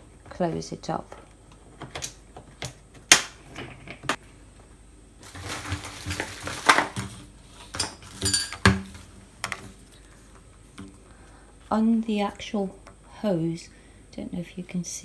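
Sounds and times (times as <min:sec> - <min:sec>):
rustling handling noise: 0:00.1 - 0:11.7
vacuum cover clicking and clattering: 0:05.2 - 0:09.9.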